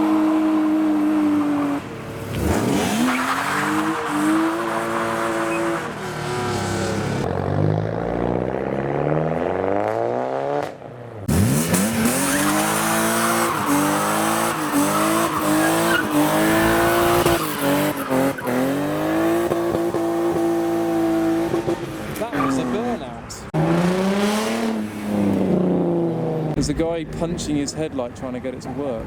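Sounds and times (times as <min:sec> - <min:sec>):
car engine revving: 0:00.0 - 0:26.8.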